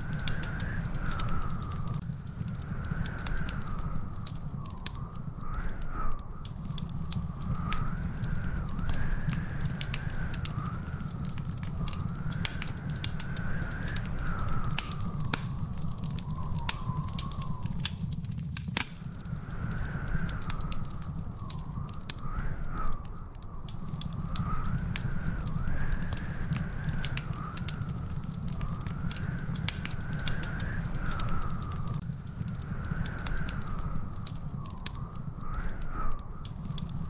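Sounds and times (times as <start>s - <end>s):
wood fire crackling and popping: 0.0s - 37.0s
thin wavering whistle: 13.2s - 18.1s.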